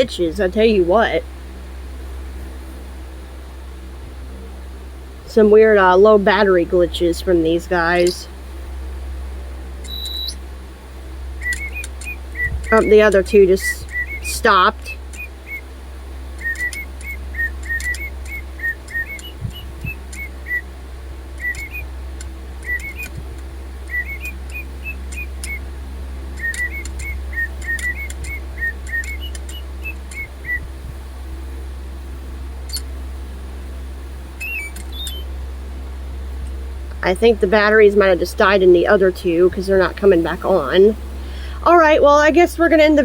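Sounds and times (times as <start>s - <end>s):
small clicks: 9.8s - 10.4s, 11.4s - 12.8s, 14.8s - 15.3s, 16.4s - 20.6s, 21.4s - 25.6s, 26.4s - 30.6s, 32.7s - 32.9s, 34.4s - 35.2s
toy bird whistled chirps: 9.9s - 10.4s, 16.4s - 20.6s, 21.4s - 21.8s, 22.6s - 23.1s, 23.9s - 25.6s, 26.4s - 30.6s, 34.4s - 35.2s.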